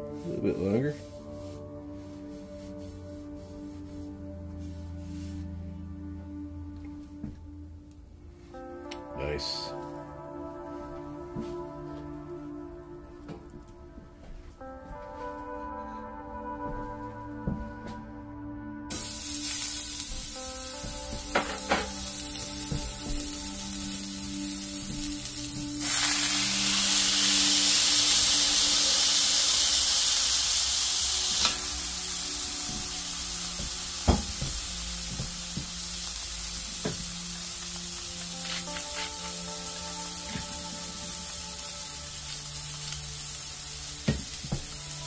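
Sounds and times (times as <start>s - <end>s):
burgers sizzling in a skillet: 18.9s - 45.0s.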